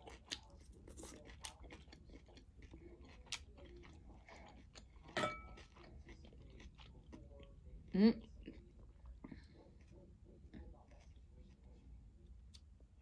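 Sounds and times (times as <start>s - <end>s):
faint chewing with wet mouth clicks: 0.0s - 12.8s.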